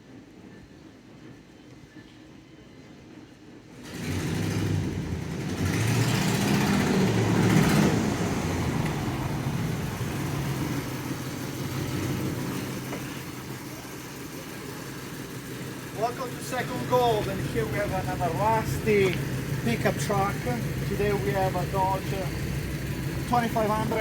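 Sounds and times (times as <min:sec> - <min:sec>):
pickup engine starting and idling: 0:03.8 - 0:24.0.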